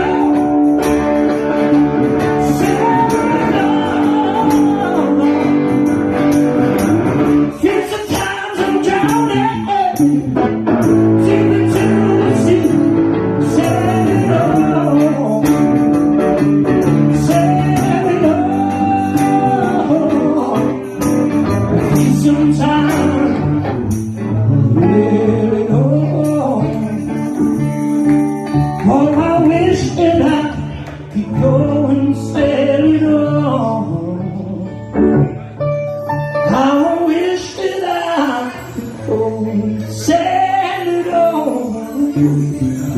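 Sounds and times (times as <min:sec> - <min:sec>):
bass guitar: 0:00.0 - 0:42.9
electric lead guitar bending notes: 0:00.0 - 0:42.9
rhythm guitar: 0:00.0 - 0:42.9.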